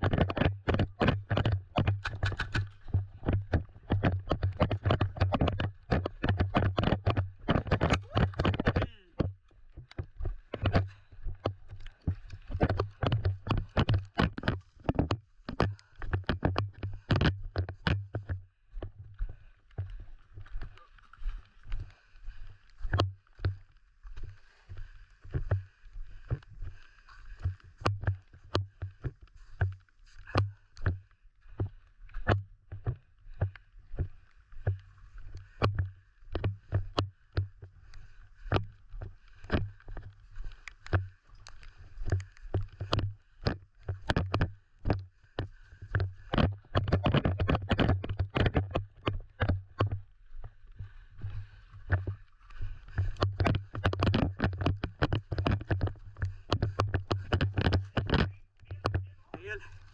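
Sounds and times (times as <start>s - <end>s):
gear clicking and knocking: 0.0s - 18.9s, 38.4s - 50.0s, 52.7s - 59.6s.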